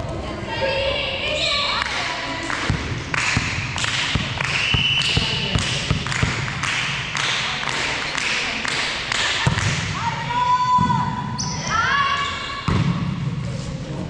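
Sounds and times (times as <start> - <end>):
volleyballs bouncing on floor: 2.5 - 10.0.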